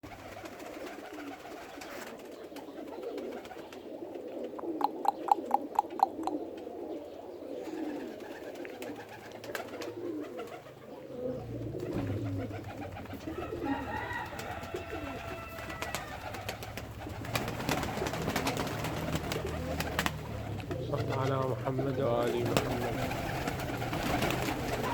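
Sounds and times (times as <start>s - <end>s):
pigeons cooing: 0.0s - 24.9s
sharp claps or knocks: 4.8s - 6.4s.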